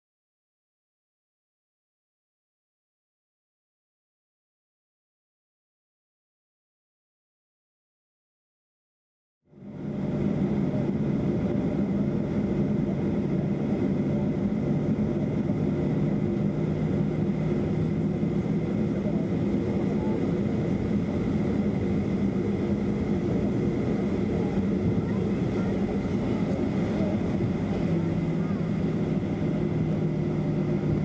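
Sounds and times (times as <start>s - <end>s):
jet engines idling in cabin: 9.5s - 31.0s.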